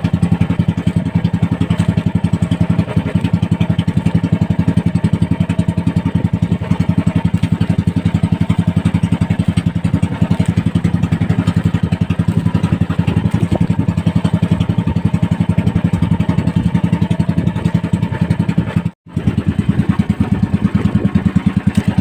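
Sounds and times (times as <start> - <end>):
small boat engine chugging: 0.0 - 22.0.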